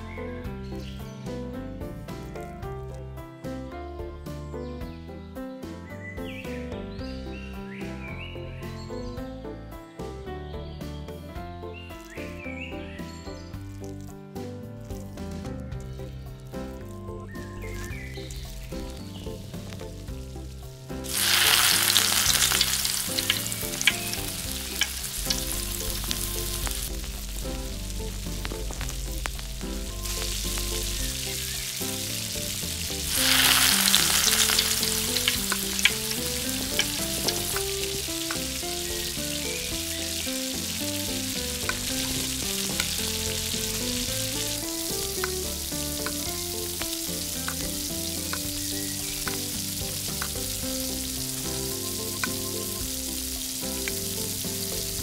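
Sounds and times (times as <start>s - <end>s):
food sizzling in hot oil: 14.8s - 55.0s
stirring clicks: 32.0s - 38.7s.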